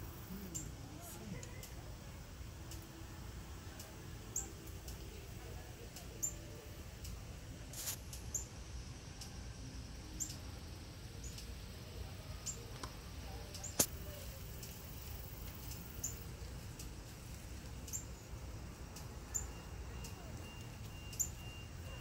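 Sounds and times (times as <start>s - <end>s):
low outdoor rumble: 0.0s - 22.0s
high bird chirps: 19.1s - 22.0s.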